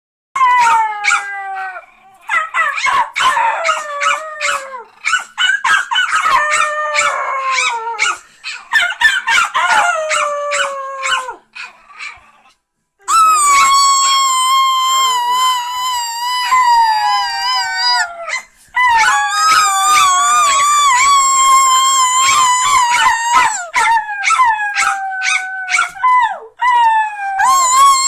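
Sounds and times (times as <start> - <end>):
dogs howling: 0.4 - 5.2, 5.9 - 8.2, 8.8 - 11.4, 13.1 - 28.0
dogs yapping: 2.2 - 12.3.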